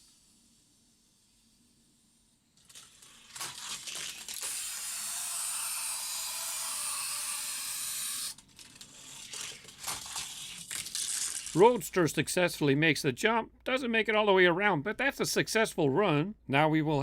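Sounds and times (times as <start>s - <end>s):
toy car wheels on plastic track: 0.0s - 12.1s
toy car clicks and rattles: 2.6s - 11.9s.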